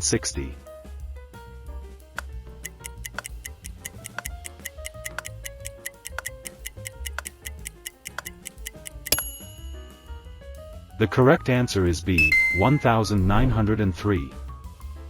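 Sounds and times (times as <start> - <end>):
background music: 0.0 - 15.0
fast timer ticking: 2.6 - 9.7, 12.2 - 13.2.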